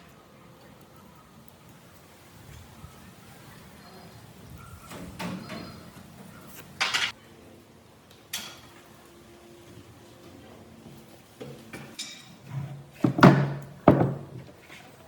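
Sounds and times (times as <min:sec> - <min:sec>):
wooden knocks: 0:13.0 - 0:14.4.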